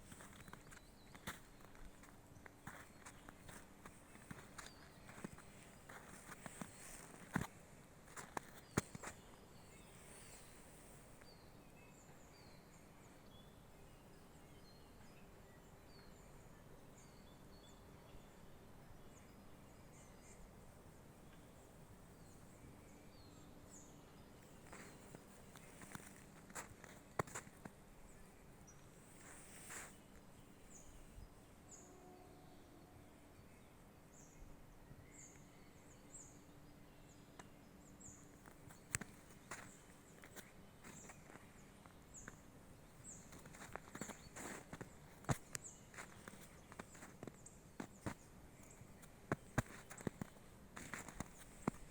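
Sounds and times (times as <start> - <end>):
footsteps: 0.0 - 7.5, 24.6 - 27.7, 43.3 - 48.2, 49.0 - 51.9.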